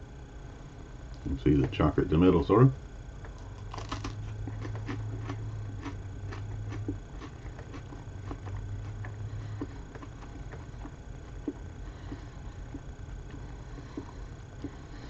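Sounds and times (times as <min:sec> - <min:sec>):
steady low hum: 0:00.0 - 0:15.0
crunching wafer: 0:03.3 - 0:13.4.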